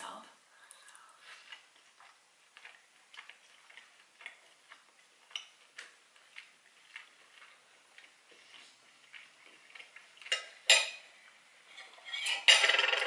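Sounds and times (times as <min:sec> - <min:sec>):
wet mouth clicks chewing: 0:00.7 - 0:10.6.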